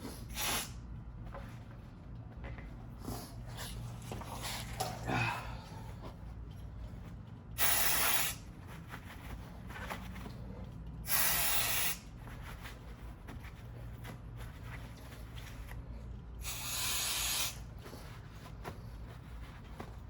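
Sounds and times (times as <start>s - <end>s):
aerosol spray can hissing: 0.3s - 0.8s, 7.6s - 8.4s, 11.1s - 12.0s, 16.4s - 17.6s.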